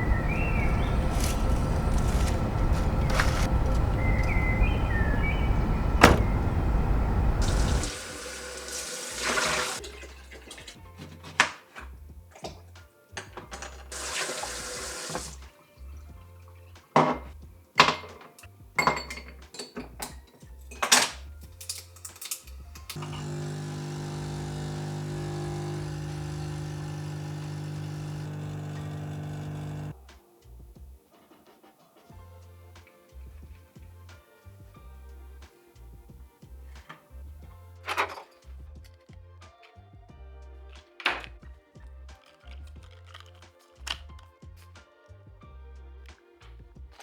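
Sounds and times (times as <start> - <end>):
rushing water: 0.0 - 9.9, 13.9 - 15.4.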